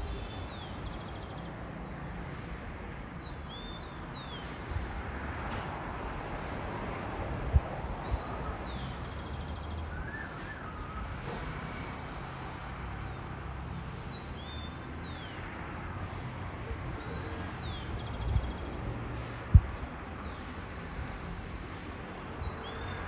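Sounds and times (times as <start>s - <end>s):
bird whistles and buzzy trill: 9.9s - 11.0s.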